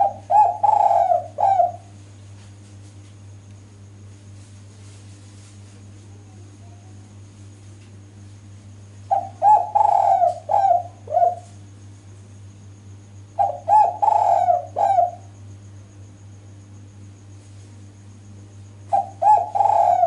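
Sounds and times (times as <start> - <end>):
dove cooing: 0.0 - 2.0, 9.1 - 11.6, 13.4 - 15.4, 18.8 - 20.0
steady low hum: 0.0 - 20.0.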